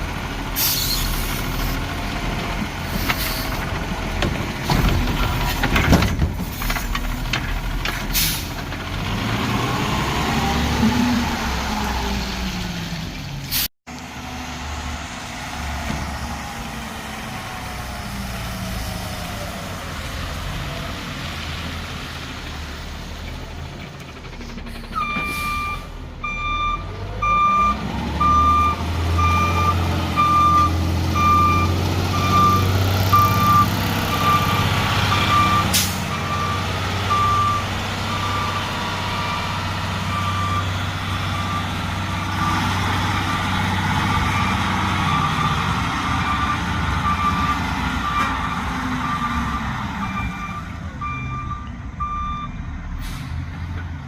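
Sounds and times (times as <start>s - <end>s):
garbage truck engine revving: 0.0s - 13.3s, 14.0s - 54.0s
reversing alarm beeping: 25.0s - 42.7s, 44.1s - 52.6s.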